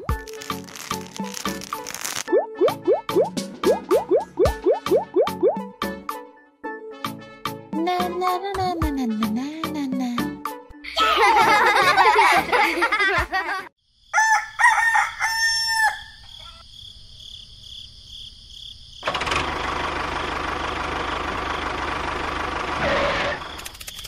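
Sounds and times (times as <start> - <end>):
rooster crowing: 14.1 - 16.6.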